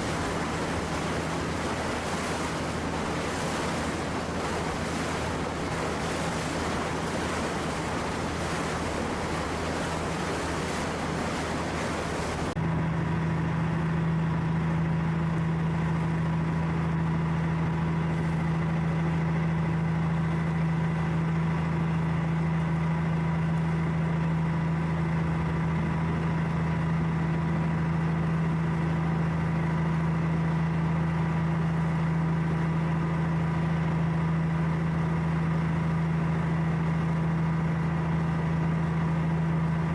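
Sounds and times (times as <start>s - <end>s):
surf: 0.0s - 12.6s
engine hum: 0.0s - 39.9s
wind: 0.0s - 39.9s.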